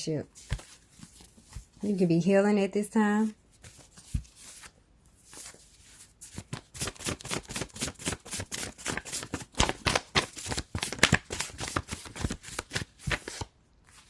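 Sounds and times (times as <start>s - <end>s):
cards being shuffled: 0.4s - 1.8s, 3.6s - 14.0s.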